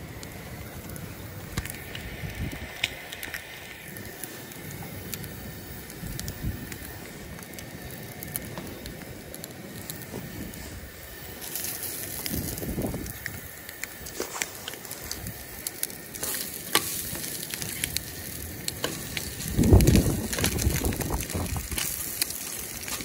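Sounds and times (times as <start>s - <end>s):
camp stove burner hissing: 0.0s - 23.0s
food sizzling in a frying pan: 0.0s - 23.0s.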